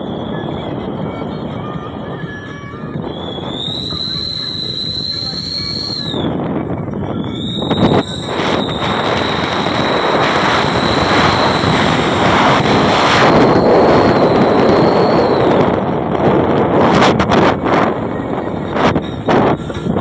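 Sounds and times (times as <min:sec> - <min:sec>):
high whistle: 0:00.0 - 0:00.8, 0:03.0 - 0:06.4, 0:07.2 - 0:15.8
loud rough car exhaust: 0:03.1 - 0:06.2, 0:07.4 - 0:15.6.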